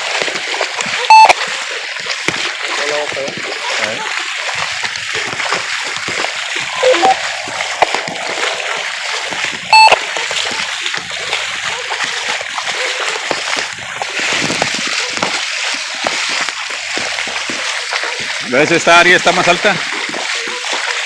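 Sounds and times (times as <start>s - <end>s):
feet splashing through floodwater: 0.0s - 21.0s
short electronic beep: 1.1s - 1.3s, 6.6s - 10.2s.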